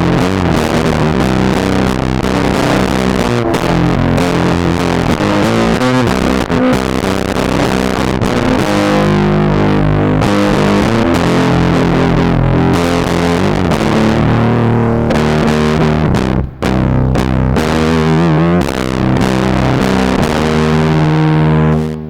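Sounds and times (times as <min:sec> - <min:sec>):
distorted electric guitar chords: 0:00.0 - 0:22.0.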